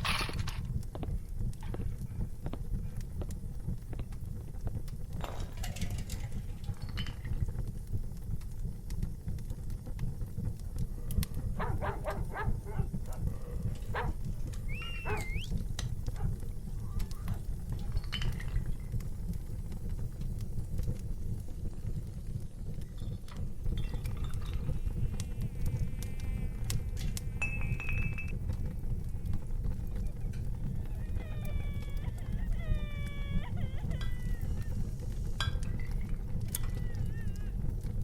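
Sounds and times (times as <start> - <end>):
wood fire crackling: 0.0 - 38.0
whistle-like call: 14.6 - 15.6.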